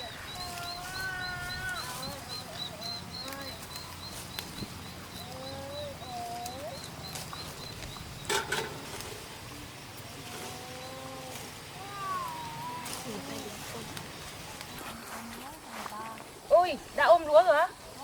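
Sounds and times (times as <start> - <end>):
sliding animal cries: 0.4 - 2.3, 10.2 - 13.1.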